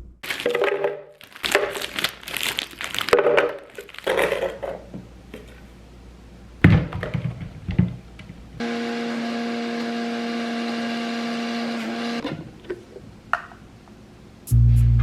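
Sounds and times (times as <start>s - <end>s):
packaging crinkling: 0.2s - 4.7s.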